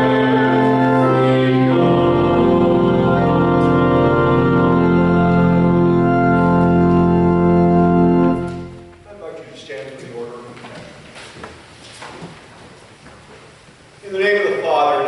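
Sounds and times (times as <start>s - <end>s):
organ playing slow chords: 0.0s - 9.2s.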